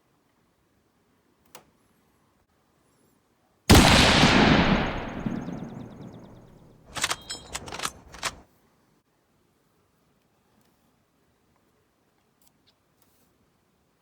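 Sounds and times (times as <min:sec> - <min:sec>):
loud rifle shot with echo: 0:03.7 - 0:08.4
sharp metallic clicks: 0:03.7 - 0:08.4.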